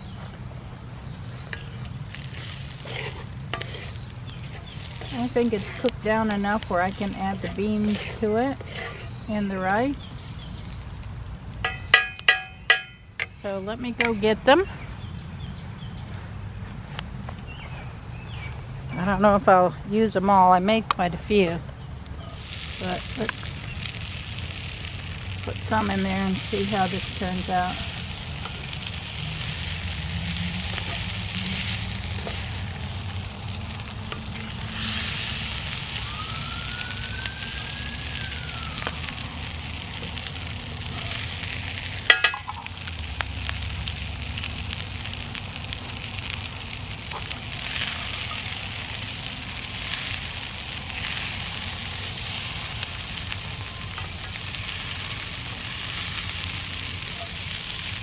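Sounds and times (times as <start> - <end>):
food sizzling in a pan: 0.0 - 16.0, 19.1 - 58.0
sharp metal clank: 11.6 - 13.4.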